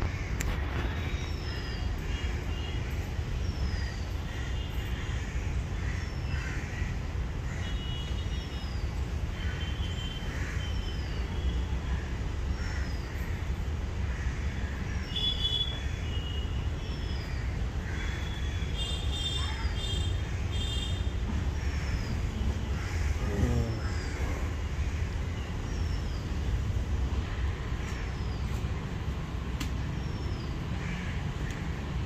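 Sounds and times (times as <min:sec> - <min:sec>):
birds chirping: 0:14.1 - 0:32.0.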